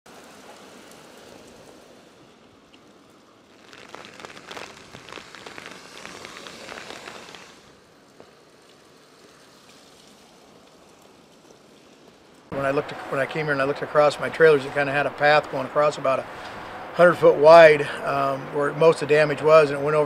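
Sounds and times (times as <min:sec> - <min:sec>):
dense crackling and rustling: 0:00.1 - 0:16.6
steady low noise: 0:12.5 - 0:19.4.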